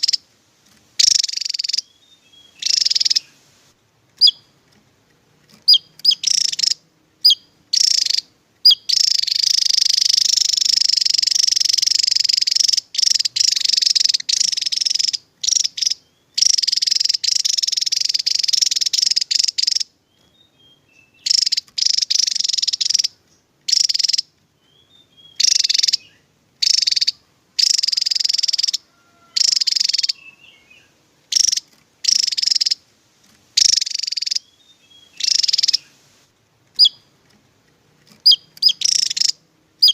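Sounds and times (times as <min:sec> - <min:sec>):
bird chattering trills: 0:00.0 - 0:00.2, 0:01.0 - 0:03.4, 0:04.2 - 0:04.5, 0:05.6 - 0:32.8, 0:33.6 - 0:36.0, 0:36.8 - 0:37.1, 0:38.2 - 0:39.9.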